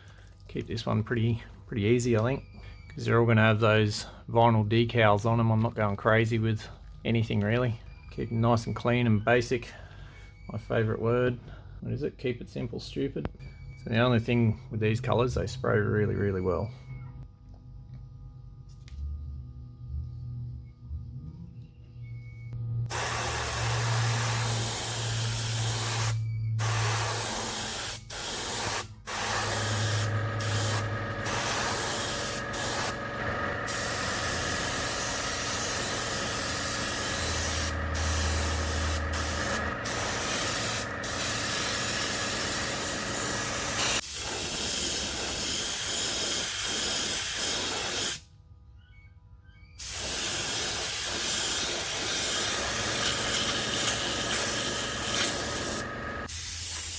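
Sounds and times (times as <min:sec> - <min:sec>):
airbrush spraying hiss: 0:22.9 - 0:48.3, 0:49.8 - 0:56.9.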